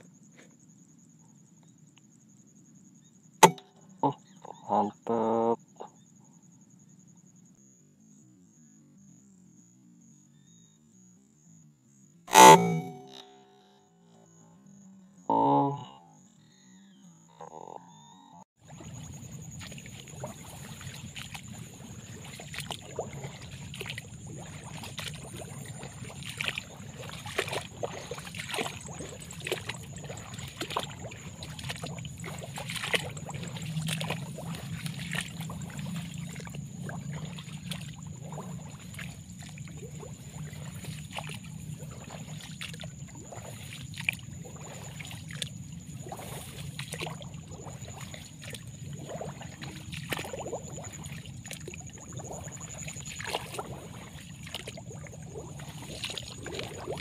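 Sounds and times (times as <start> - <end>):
thin high-pitched tone: 12.3 - 13.6
rustling and splashing steps: 18.6 - 57.0.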